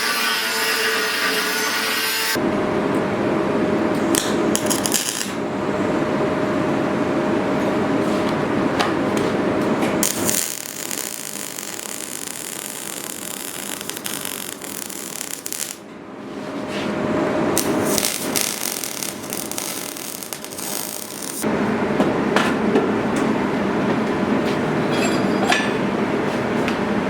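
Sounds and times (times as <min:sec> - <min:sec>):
power tool humming: 0:10.0 - 0:15.8, 0:17.6 - 0:21.4.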